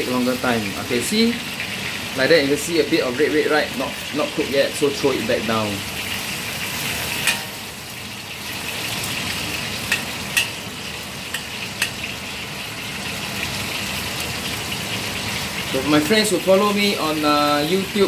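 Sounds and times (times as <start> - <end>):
fish sizzling in hot oil: 0.0 - 18.0
spatula clicking against wok: 9.9 - 10.6, 11.3 - 12.0.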